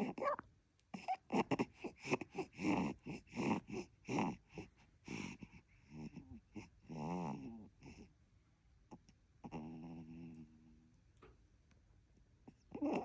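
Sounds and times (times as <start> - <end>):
baby grunting and squeaking: 0.0 - 0.4, 12.7 - 13.0.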